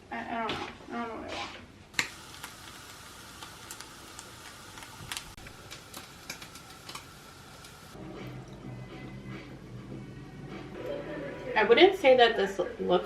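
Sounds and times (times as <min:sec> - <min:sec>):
steady hiss: 0:02.0 - 0:08.0.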